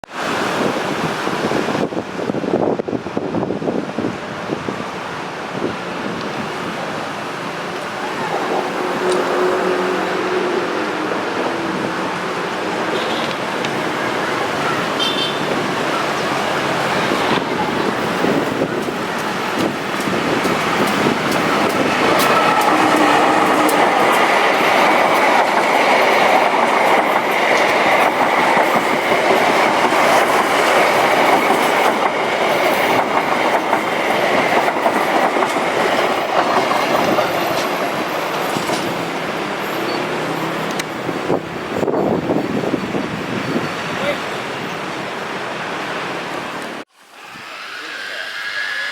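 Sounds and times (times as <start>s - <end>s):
train wheels clicking over rails: 15.6s - 43.2s.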